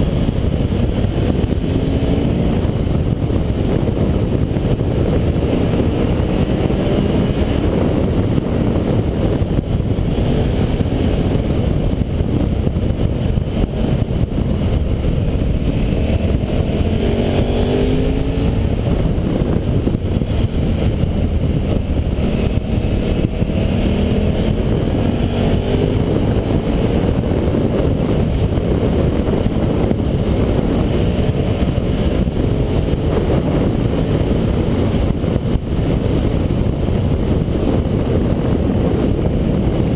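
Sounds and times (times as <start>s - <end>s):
motorcycle engine accelerating: 0.0s - 39.9s
wind rush on microphone: 0.0s - 39.9s.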